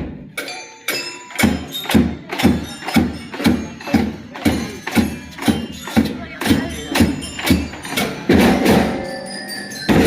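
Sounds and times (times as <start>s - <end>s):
marching band drums beating: 1.0s - 9.1s
high ringing tones: 6.8s - 10.0s.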